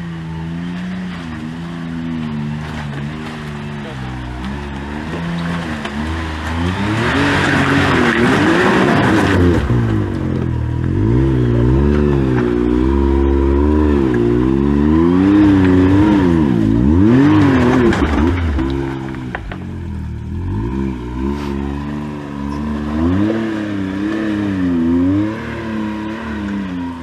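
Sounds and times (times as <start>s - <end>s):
engine revving: 0.0s - 27.0s.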